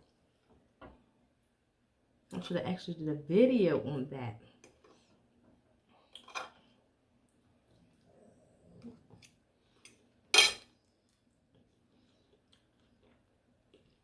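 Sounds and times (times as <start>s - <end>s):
soft chewing: 4.5s - 14.0s.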